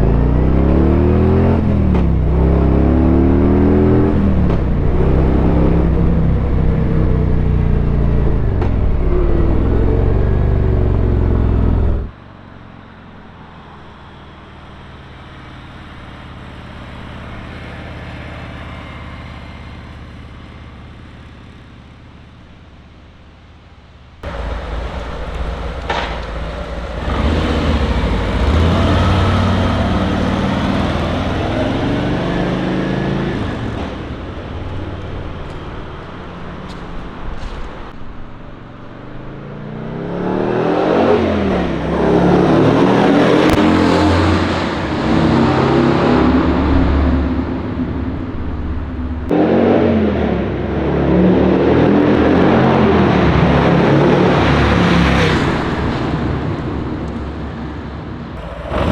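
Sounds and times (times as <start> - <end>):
motorcycle engine passing by: 0.0 - 23.3, 24.2 - 38.0, 58.4 - 58.9.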